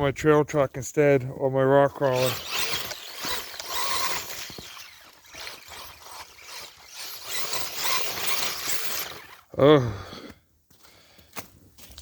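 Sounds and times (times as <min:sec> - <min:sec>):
electric motor of toy truck: 0:01.9 - 0:09.5.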